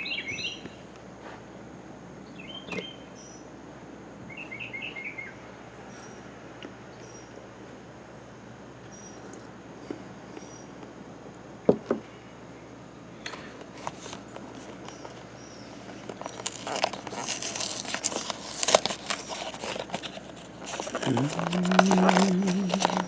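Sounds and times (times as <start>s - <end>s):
packaging crinkling and tearing: 13.7s - 15.2s, 16.0s - 23.0s.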